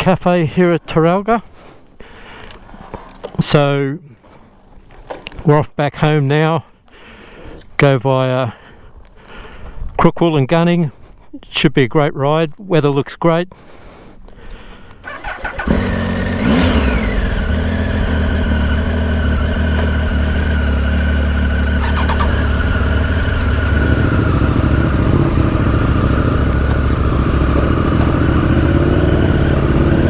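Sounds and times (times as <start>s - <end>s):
motorcycle engine starting and idling: 15.0s - 30.0s.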